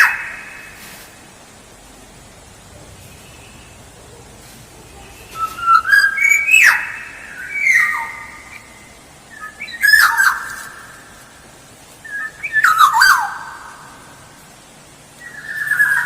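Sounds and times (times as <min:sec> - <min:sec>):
oriole singing whistled phrases: 0:05.2 - 0:10.5, 0:12.0 - 0:13.4, 0:15.2 - 0:16.0.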